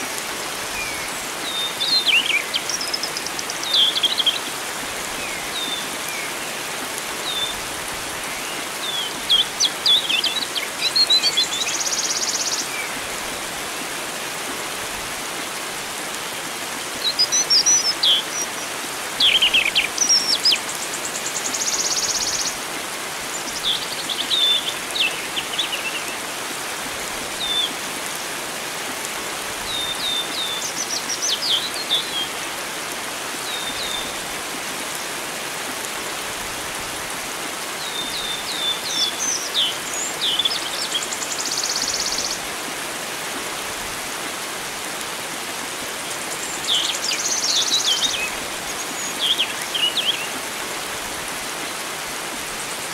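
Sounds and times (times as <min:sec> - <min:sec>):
flowing water hiss: 0:00.0 - 0:52.9
songbirds whistling and chirping: 0:00.8 - 0:04.5, 0:29.7 - 0:32.3.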